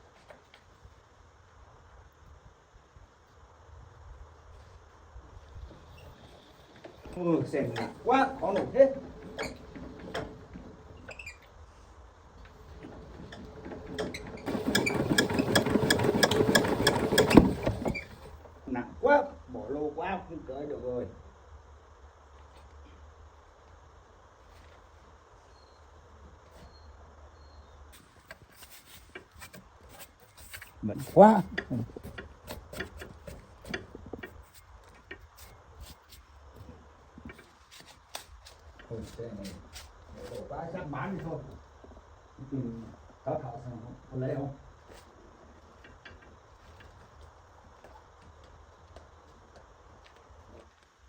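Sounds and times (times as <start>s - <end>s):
motorbike engine cranking: 5.9s - 11.4s, 12.4s - 18.5s, 29.0s - 35.5s.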